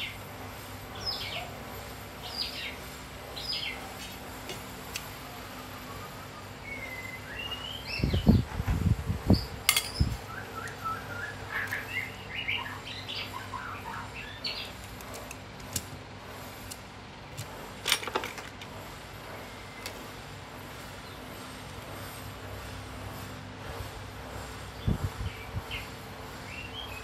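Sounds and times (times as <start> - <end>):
small birds chirping: 0.9 - 1.6, 2.2 - 4.3, 5.5 - 8.6, 9.3 - 15.0, 24.6 - 27.0.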